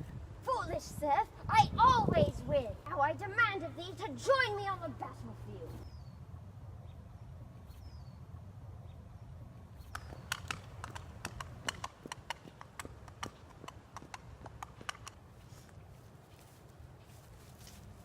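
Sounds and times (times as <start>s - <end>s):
horse hooves clip-clopping: 9.8s - 18.0s.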